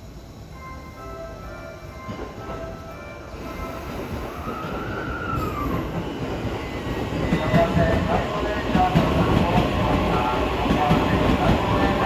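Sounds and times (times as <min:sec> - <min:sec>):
train wheels clattering on rails: 0:03.7 - 0:12.0.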